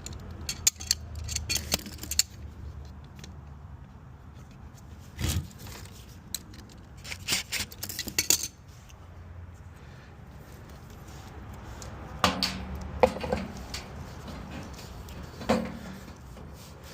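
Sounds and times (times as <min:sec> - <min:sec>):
metal tools clinking and rattling: 0:00.0 - 0:02.4, 0:05.8 - 0:08.6.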